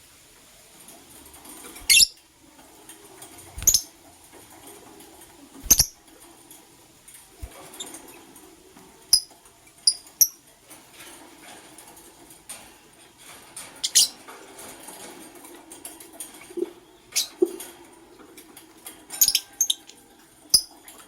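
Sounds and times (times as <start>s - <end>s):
lovebirds chirping: 1.8s - 2.2s, 3.5s - 4.0s, 5.6s - 6.0s.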